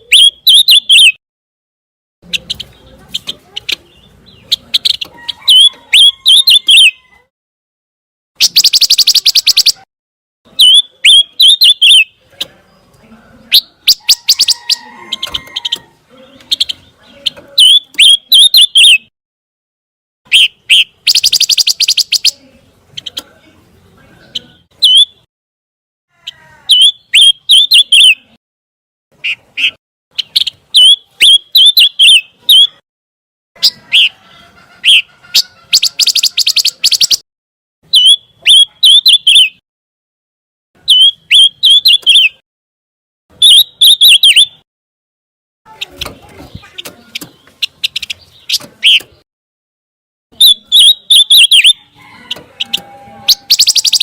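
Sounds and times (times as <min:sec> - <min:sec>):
songbird chirping and trilling: 0:00.0 - 0:01.2, 0:02.2 - 0:07.3, 0:08.4 - 0:09.9, 0:10.5 - 0:19.1, 0:20.3 - 0:25.3, 0:26.1 - 0:28.4, 0:29.2 - 0:32.8, 0:33.6 - 0:37.2, 0:37.8 - 0:39.6, 0:40.8 - 0:42.4, 0:43.3 - 0:44.6, 0:45.7 - 0:49.3, 0:50.3 - 0:54.0.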